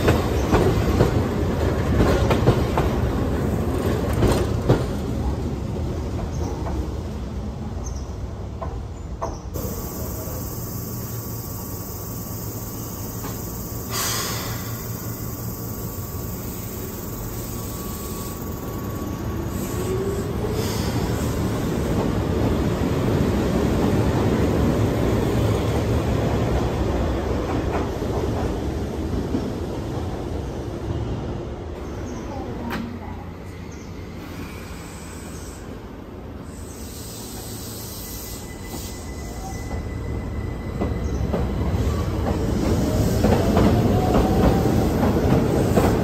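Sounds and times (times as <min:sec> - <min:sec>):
train hum: 0:00.0 - 0:46.0
train motor whine: 0:09.6 - 0:20.4
brief hiss: 0:13.8 - 0:15.0.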